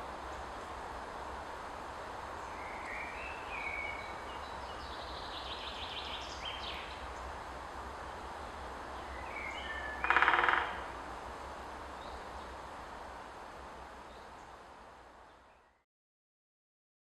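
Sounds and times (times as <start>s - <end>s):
outdoor background: 0.0s - 15.8s
woodpecker drumming on wood: 10.0s - 10.9s.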